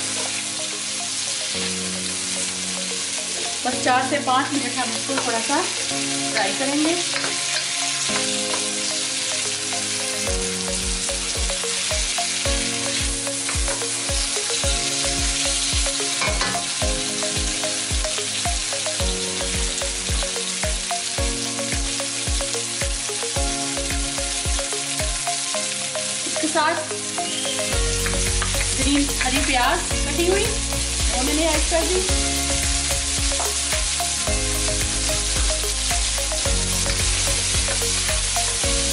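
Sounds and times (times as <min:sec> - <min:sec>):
peppers sizzling in hot oil: 0:00.0 - 0:38.9.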